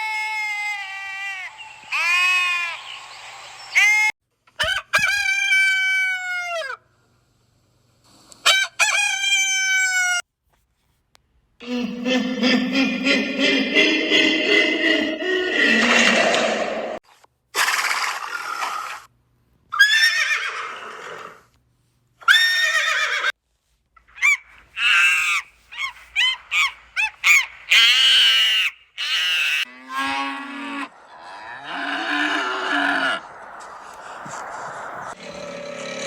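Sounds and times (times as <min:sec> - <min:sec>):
animal calls: 0:24.1 - 0:36.0.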